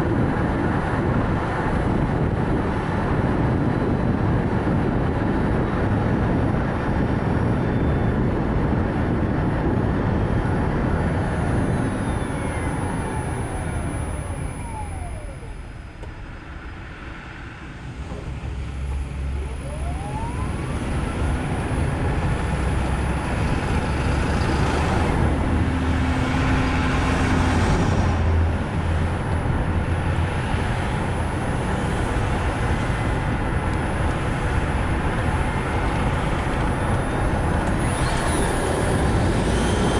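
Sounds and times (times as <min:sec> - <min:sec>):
tyre and road noise: 0:00.0 - 0:39.9
electric drive whine: 0:11.0 - 0:25.6.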